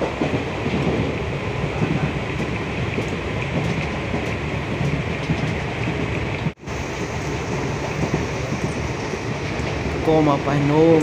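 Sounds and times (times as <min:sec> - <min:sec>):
train carriage rattling: 0:00.0 - 0:11.0
train wheels on rails: 0:00.0 - 0:11.0.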